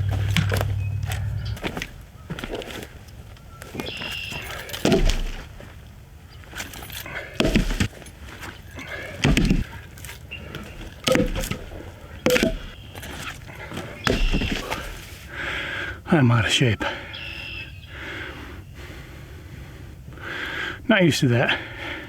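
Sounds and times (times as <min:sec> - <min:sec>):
logs thudding onto woodpile: 0:00.0 - 0:03.0, 0:04.3 - 0:05.8, 0:06.6 - 0:15.2.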